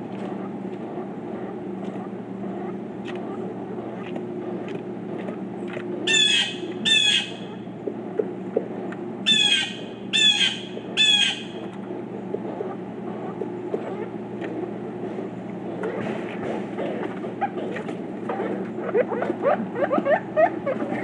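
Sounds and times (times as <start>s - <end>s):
woodpecker calling: 6.1s - 7.6s, 9.3s - 11.7s.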